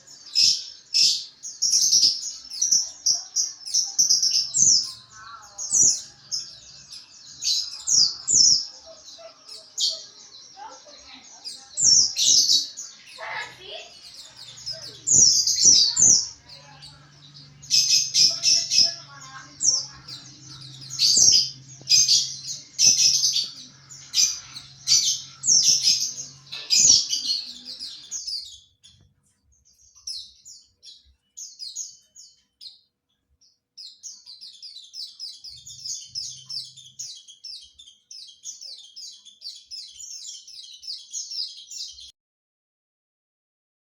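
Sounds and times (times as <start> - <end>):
bird singing high chirps: 0.0 - 42.1
fast high twittering: 11.5 - 28.6.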